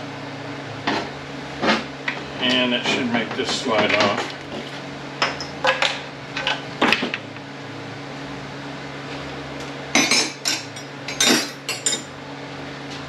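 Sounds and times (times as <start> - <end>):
metal tools clinking together: 10.0 - 12.1.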